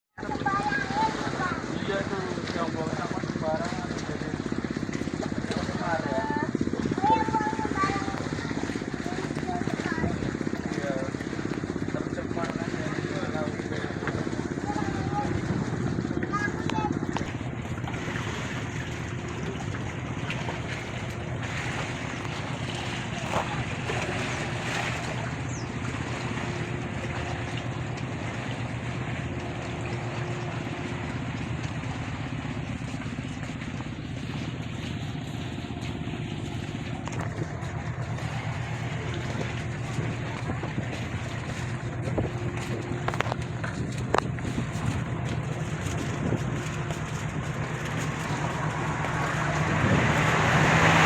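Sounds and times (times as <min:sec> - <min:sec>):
ship engine humming: 0:00.2 - 0:51.0
wind and rushing noise: 0:48.0 - 0:51.0.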